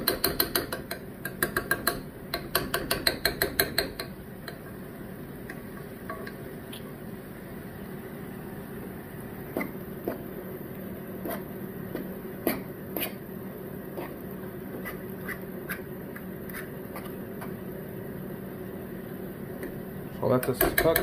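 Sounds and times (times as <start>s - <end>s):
utensil knocking against pan: 0.0s - 4.6s, 20.3s - 21.0s.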